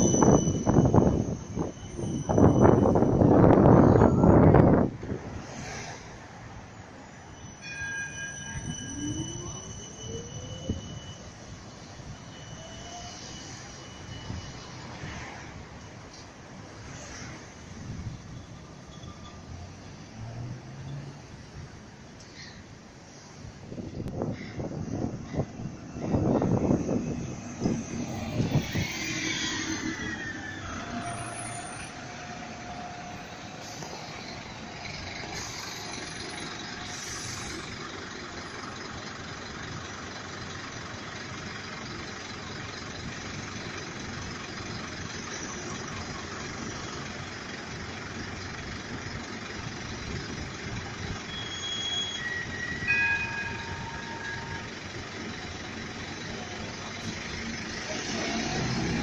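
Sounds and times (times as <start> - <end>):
tram falling whine: 0.0 - 18.0, 23.0 - 39.3, 50.4 - 59.0
high wheel squeal: 0.0 - 21.1, 24.2 - 59.0
tram rumbling on track: 0.0 - 59.0.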